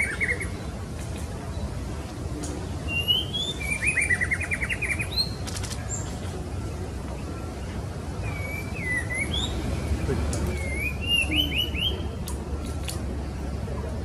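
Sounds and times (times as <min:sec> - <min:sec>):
bird whistling and trilling: 0:02.9 - 0:05.4, 0:08.2 - 0:09.6, 0:10.5 - 0:12.1.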